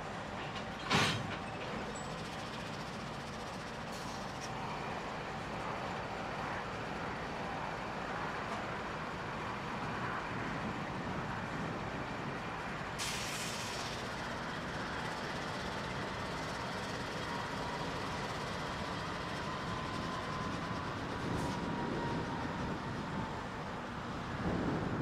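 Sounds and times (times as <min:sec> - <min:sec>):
locomotive engine rumble: 0:00.0 - 0:10.0, 0:10.6 - 0:25.0
air brake hissing: 0:13.0 - 0:14.0.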